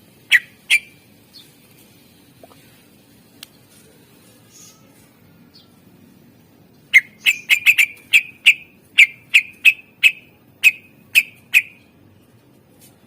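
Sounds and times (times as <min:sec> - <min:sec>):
bird singing sharp notes: 0:06.9 - 0:11.9.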